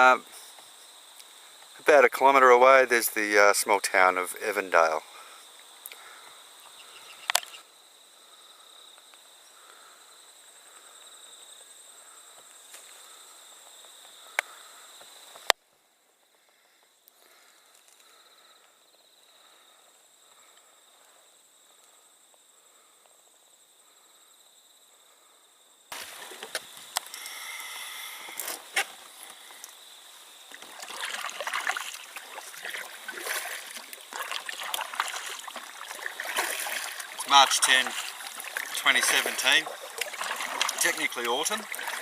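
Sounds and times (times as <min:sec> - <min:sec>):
insects trilling: 0:00.0 - 0:42.0
water splashing around canoe: 0:25.9 - 0:26.9, 0:30.4 - 0:42.0.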